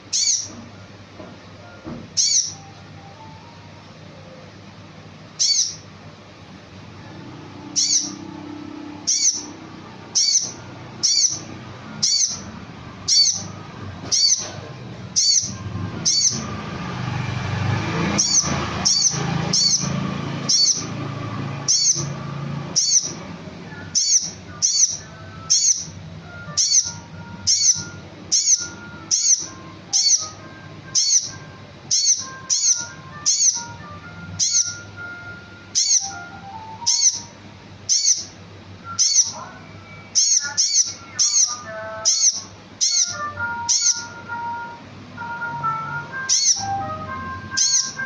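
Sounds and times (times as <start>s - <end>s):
soft bird chirps: 0.0s - 0.6s, 2.2s - 2.7s, 5.4s - 5.9s, 7.6s - 8.3s, 9.0s - 12.5s, 13.1s - 14.6s, 15.2s - 16.5s, 18.1s - 21.0s, 21.6s - 33.8s, 34.4s - 34.9s, 35.7s - 38.4s, 39.0s - 44.2s, 46.3s - 46.8s, 47.6s - 48.0s.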